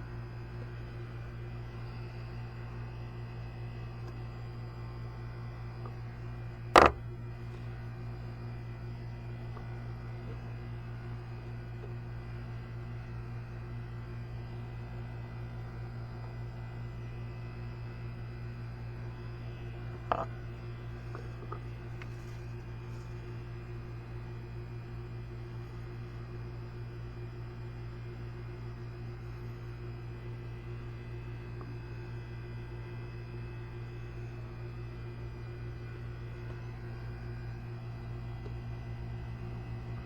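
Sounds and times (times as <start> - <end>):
steady low hum: 0.0 - 40.0
sharp knock: 6.8 - 7.0.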